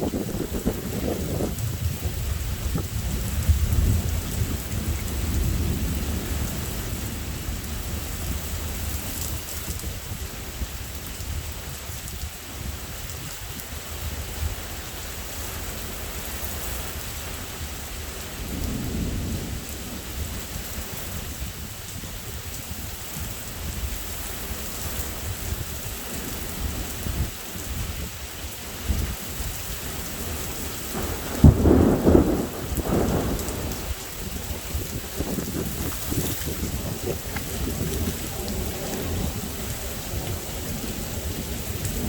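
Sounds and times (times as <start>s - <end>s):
low thunder rumble: 0.0s - 10.4s, 17.5s - 24.7s, 28.8s - 42.0s
steady rain: 0.0s - 42.0s
loud thunderclap: 30.2s - 42.0s.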